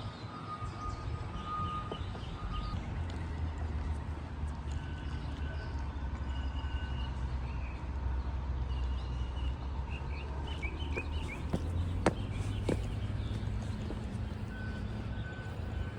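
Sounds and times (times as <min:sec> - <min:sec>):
small birds chirping: 0:10.1 - 0:14.2.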